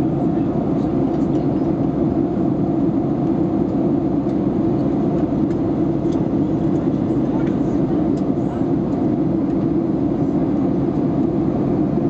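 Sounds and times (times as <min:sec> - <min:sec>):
airliner cabin drone: 0:00.0 - 0:12.0.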